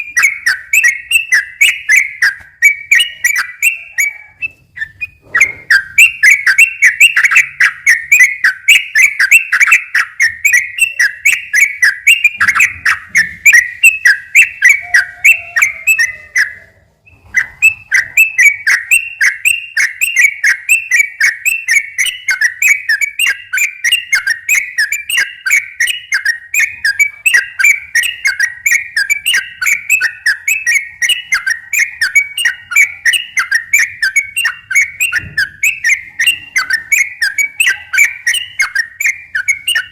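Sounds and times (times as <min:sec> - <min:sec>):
bird singing rolling song: 0:00.0 - 0:39.9.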